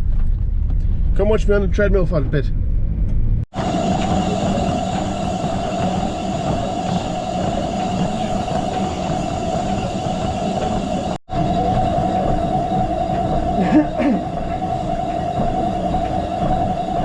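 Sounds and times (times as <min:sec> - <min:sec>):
treadmill motor humming: 0:03.5 - 0:17.0.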